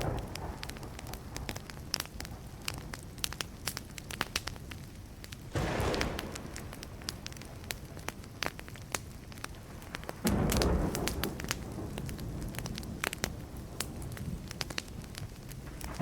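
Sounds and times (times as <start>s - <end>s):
wood fire crackling: 0.0s - 16.0s
low rush: 5.6s - 8.2s.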